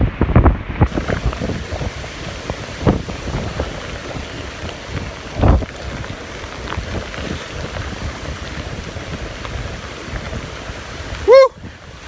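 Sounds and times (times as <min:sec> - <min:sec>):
strong wind blowing across microphone: 0:00.0 - 0:12.0
wind-driven waves rushing: 0:00.0 - 0:12.0.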